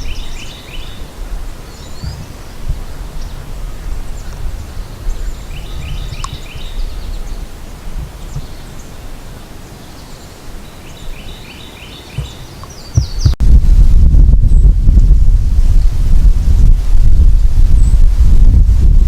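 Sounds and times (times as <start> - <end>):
bird singing short song: 4.2 - 7.5, 9.8 - 13.4
high bird chirps: 9.9 - 13.4
steady low rumble: 13.2 - 19.0.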